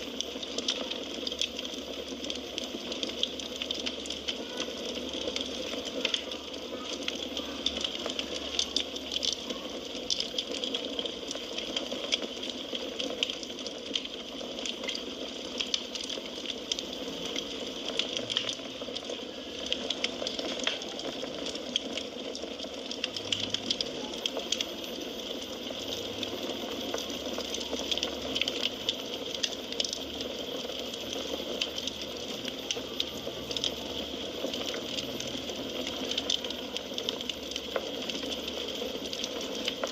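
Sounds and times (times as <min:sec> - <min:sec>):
fire hissing and crackling: 0:00.0 - 0:39.9.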